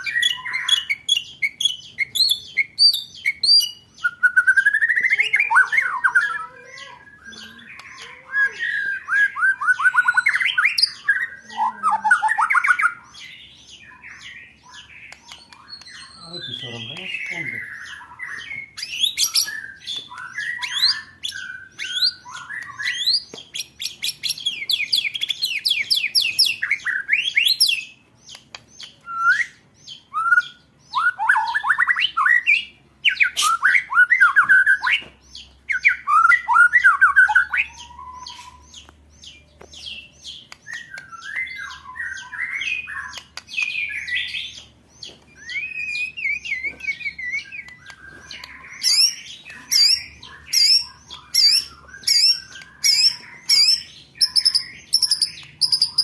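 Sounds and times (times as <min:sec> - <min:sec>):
songbird rapid trills and chatter: 0:05.2 - 0:08.8.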